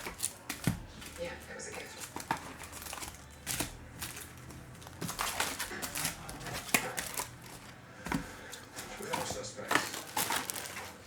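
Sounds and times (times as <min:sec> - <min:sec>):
cards and wrappers handled: 0:00.0 - 0:11.0.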